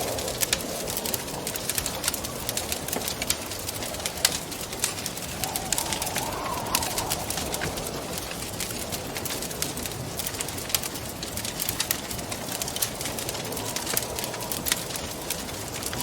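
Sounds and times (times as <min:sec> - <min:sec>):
wood fire crackling and popping: 0:00.0 - 0:16.0
wind rushing: 0:04.6 - 0:10.2.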